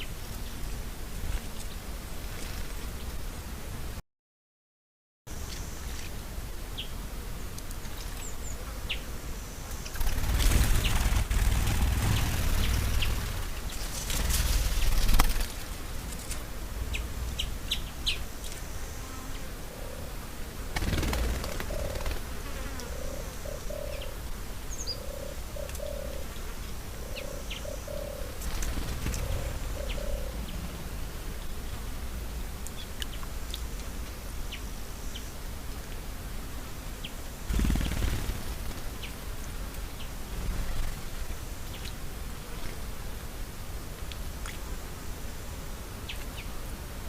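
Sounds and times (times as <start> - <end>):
birds chirping: 9.8 - 15.7, 16.8 - 18.6, 20.8 - 22.2, 22.8 - 31.8
low paired cooing: 19.6 - 20.2, 21.2 - 24.2, 24.9 - 26.3, 27.0 - 28.4, 29.0 - 30.9.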